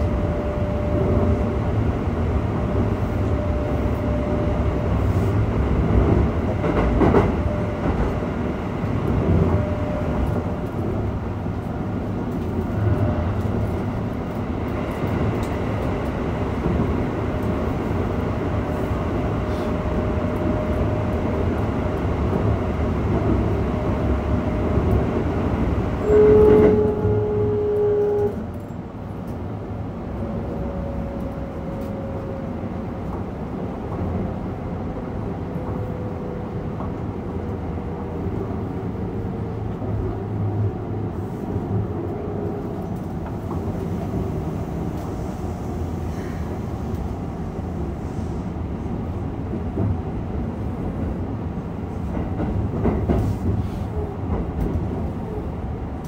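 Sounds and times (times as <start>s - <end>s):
wheels rumbling on rail: 0.0s - 56.0s
train horn: 26.0s - 28.6s.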